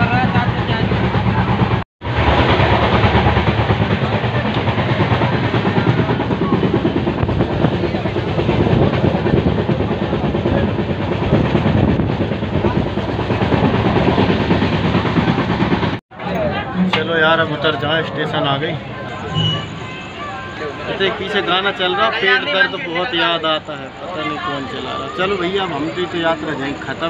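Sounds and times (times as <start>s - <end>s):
train rumbling and rattling: 0.0s - 27.0s.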